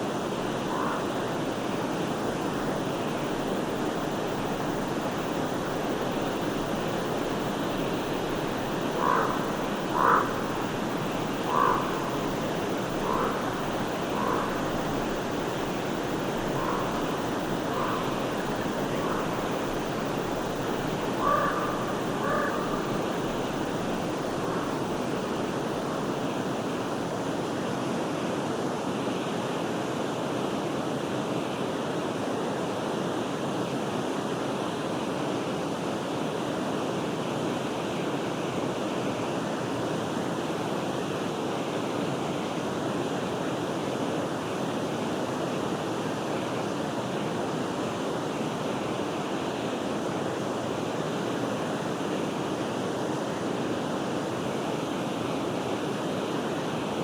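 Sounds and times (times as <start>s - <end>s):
stream flowing: 0.0s - 33.7s, 34.4s - 57.0s
bird calling: 0.1s - 3.4s, 7.8s - 25.0s.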